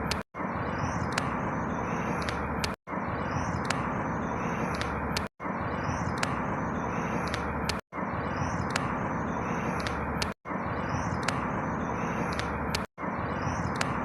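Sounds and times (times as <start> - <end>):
ticks: 0.0 - 0.2, 1.0 - 1.4, 2.1 - 2.8, 3.5 - 3.9, 4.6 - 5.3, 6.0 - 6.4, 7.0 - 7.8, 8.5 - 9.0, 9.6 - 10.4, 11.0 - 12.9, 13.6 - 14.0.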